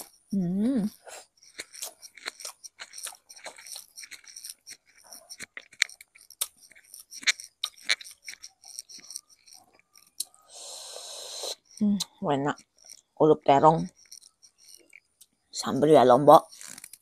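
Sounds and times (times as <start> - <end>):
person chewing with wet smacks: 0.9 - 10.4
crisp mouth clicks: 1.1 - 10.4.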